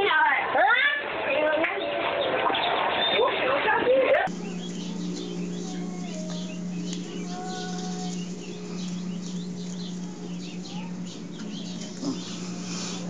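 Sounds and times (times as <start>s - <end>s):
birds chirping: 1.4s - 13.0s
steady low hum: 4.2s - 13.0s.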